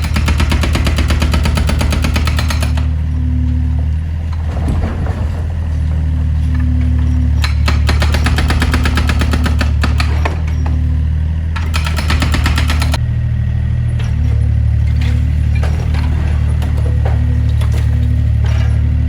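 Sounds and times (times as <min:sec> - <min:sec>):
excavator diesel engine running: 0:00.0 - 0:19.0
rapid hammering: 0:11.7 - 0:13.0.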